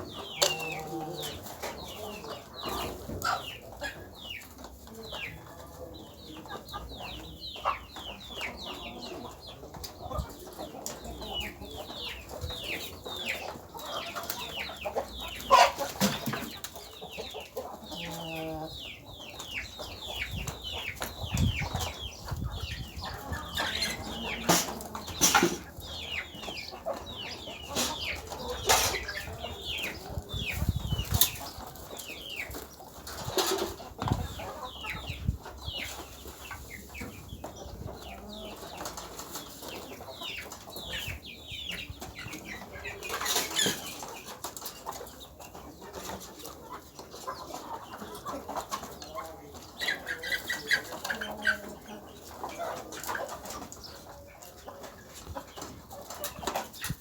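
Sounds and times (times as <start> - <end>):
chickens peeping and chirping: 0.0 - 57.0.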